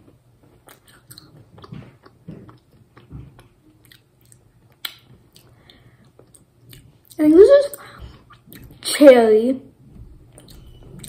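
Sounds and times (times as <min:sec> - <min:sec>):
jelly sweet being chewed: 0:00.4 - 0:07.2, 0:08.1 - 0:08.8, 0:10.3 - 0:11.0.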